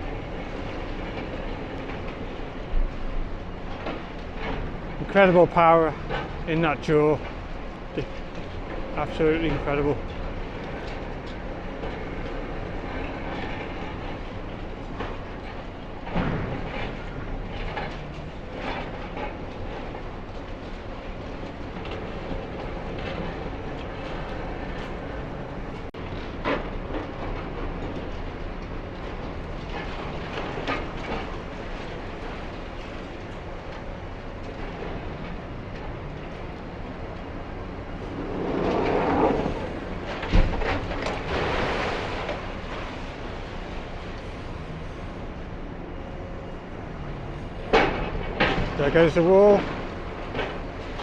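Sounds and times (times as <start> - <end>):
diesel engine running: 13.9 - 51.0.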